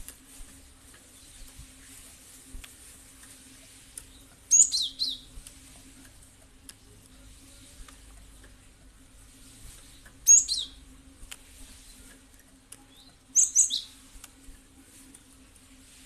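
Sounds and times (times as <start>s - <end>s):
low steady hum: 0.0s - 16.0s
faint clicks: 5.4s - 6.8s.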